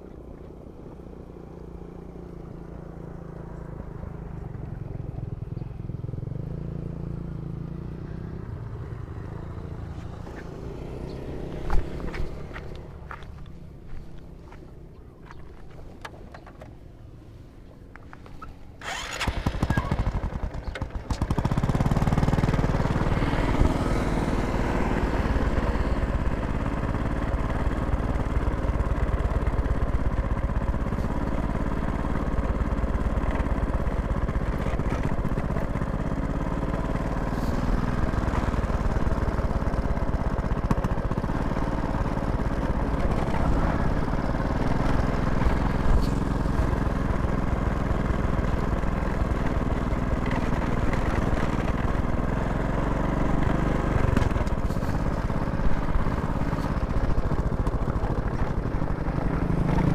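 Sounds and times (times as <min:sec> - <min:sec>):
engine starting and running: 0:18.0 - 0:59.9.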